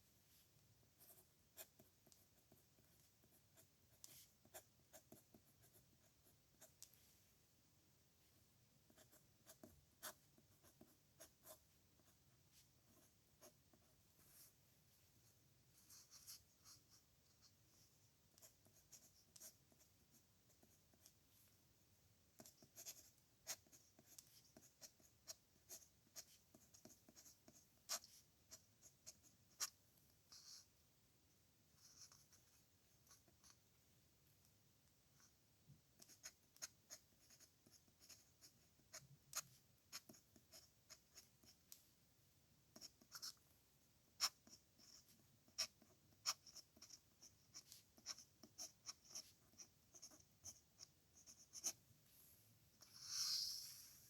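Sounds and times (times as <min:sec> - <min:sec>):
pen scratching on paper: 0:01.0 - 0:06.9, 0:08.9 - 0:14.5, 0:15.8 - 0:17.5, 0:18.3 - 0:19.9, 0:22.4 - 0:30.7, 0:36.0 - 0:41.6, 0:42.7 - 0:43.4, 0:44.2 - 0:51.8.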